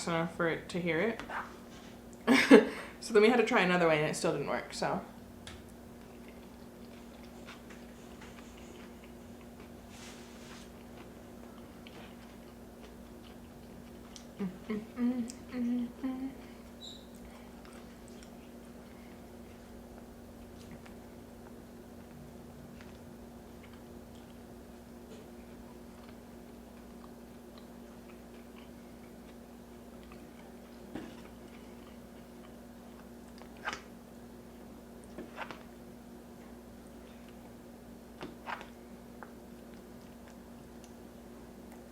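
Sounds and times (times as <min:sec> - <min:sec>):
low hum: 0:05.0 - 0:38.1
chewing food: 0:05.6 - 0:15.6, 0:16.5 - 0:33.9, 0:38.2 - 0:41.9
person humming: 0:14.4 - 0:16.7.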